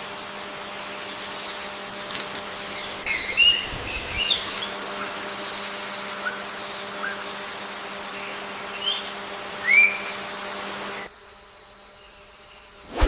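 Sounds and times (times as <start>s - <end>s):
insect hiss: 0.0s - 13.0s
birds whistling calls: 1.2s - 7.4s, 8.2s - 11.1s.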